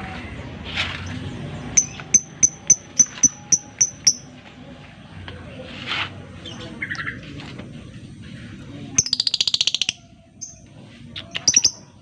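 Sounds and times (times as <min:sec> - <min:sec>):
lovebird chirping: 0:01.7 - 0:04.3, 0:09.0 - 0:12.0.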